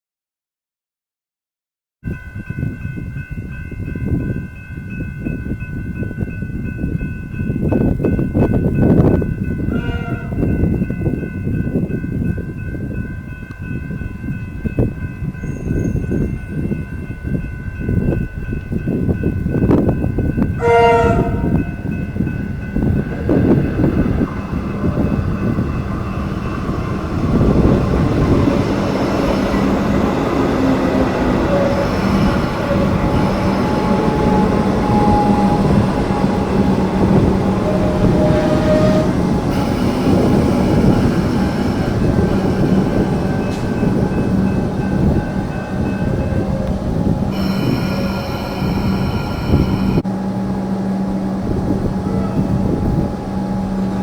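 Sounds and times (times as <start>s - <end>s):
train rail noise: 2.1s - 54.0s
train horn blast: 9.7s - 10.6s, 20.5s - 22.0s, 31.3s - 44.3s, 44.9s - 54.0s.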